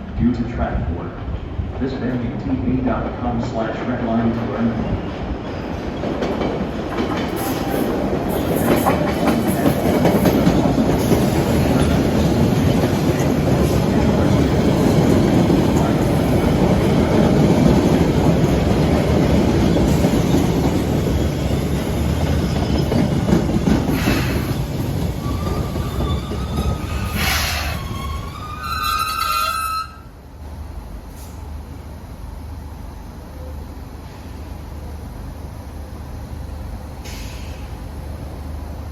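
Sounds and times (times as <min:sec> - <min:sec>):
train wheels running over rails: 0:05.0 - 0:28.2.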